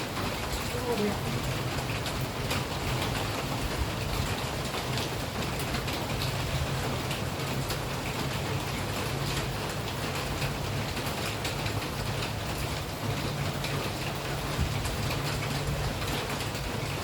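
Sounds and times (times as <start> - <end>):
raindrops ticking: 0.0 - 17.0
steady rain falling: 0.0 - 17.0.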